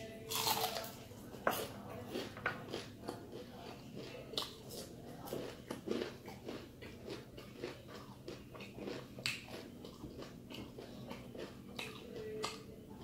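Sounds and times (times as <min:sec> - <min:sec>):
crunching fried chicken skin: 0:00.3 - 0:00.9.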